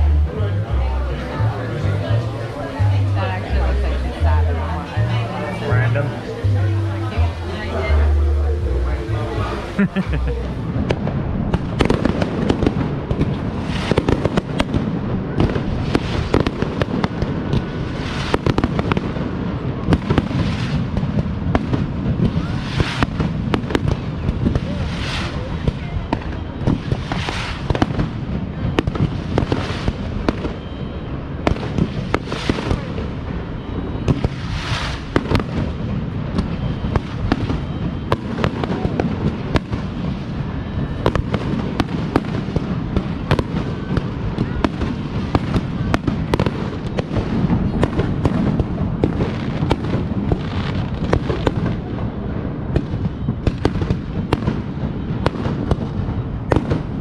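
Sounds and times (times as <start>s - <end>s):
low rumble: 0.0s - 18.1s
fireworks hissing bursts: 0.0s - 51.9s
fireworks bangs and crackling: 0.0s - 57.0s.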